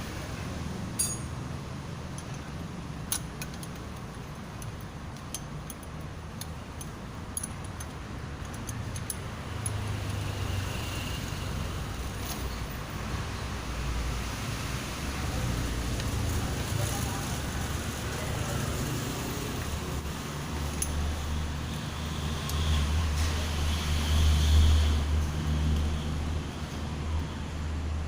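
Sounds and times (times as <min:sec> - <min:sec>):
metallic clinks of tools: 0:01.0 - 0:01.4.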